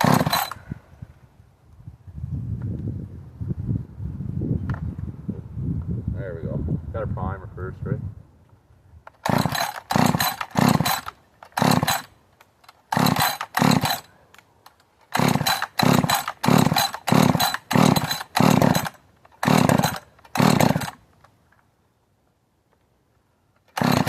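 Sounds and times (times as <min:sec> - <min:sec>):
chainsaw engine revving in blips: 0:00.0 - 0:00.6, 0:09.2 - 0:12.1, 0:12.9 - 0:14.1, 0:15.1 - 0:21.0, 0:23.7 - 0:24.0.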